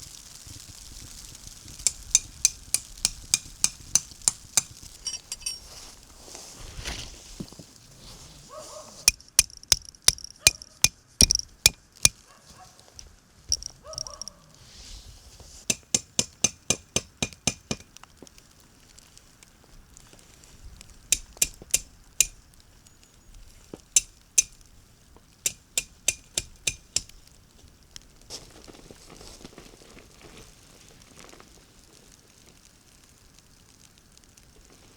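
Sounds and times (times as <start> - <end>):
utensil clinking on cookware: 1.9 - 5.7.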